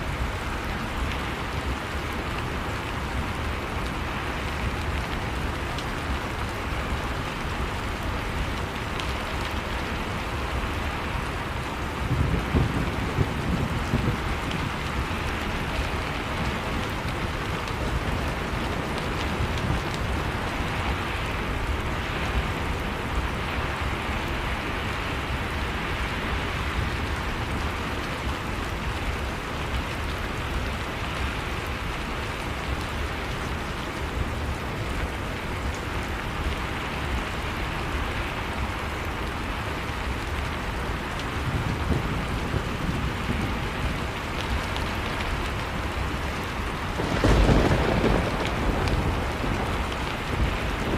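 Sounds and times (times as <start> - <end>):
heavy rain falling: 0.0 - 50.9
thunder rumble: 12.0 - 20.5, 41.3 - 50.9.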